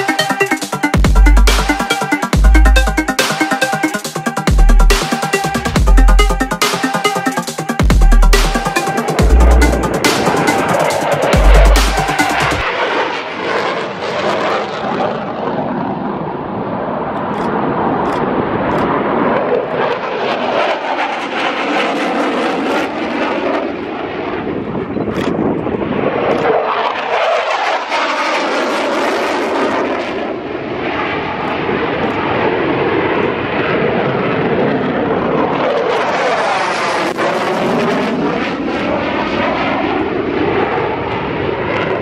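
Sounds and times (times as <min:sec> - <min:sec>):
airplane engine passing overhead: 0:08.7 - 0:42.0.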